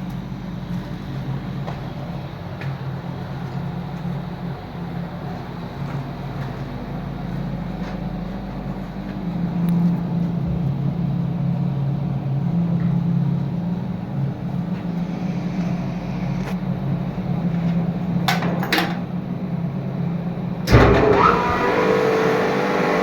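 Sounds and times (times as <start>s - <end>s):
air compressor humming: 8.3s - 23.0s.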